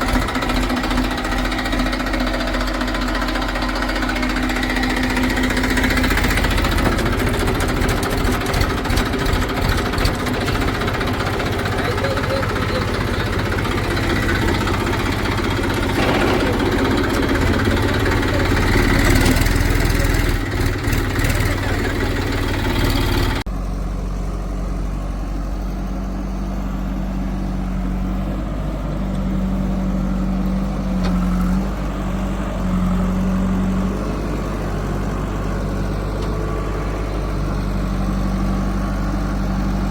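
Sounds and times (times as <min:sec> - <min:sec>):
loud mechanical clattering: 0:00.0 - 0:23.4
diesel engine idling: 0:00.0 - 0:39.9
diesel engines running under load: 0:00.0 - 0:39.9.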